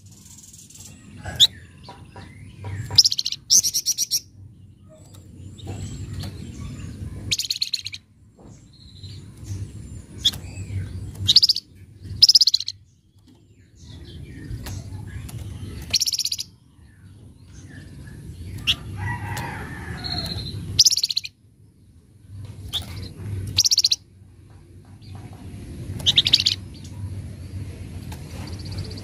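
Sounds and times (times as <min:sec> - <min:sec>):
songbird chattering rattles: 0:00.0 - 0:21.3, 0:22.5 - 0:29.0
low rumbling background noise: 0:00.0 - 0:29.0
high bird chirps: 0:10.2 - 0:12.9, 0:20.0 - 0:21.4.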